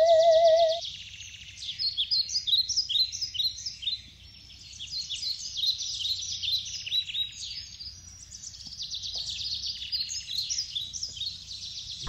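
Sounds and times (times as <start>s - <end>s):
birds chirping: 0.0s - 0.8s.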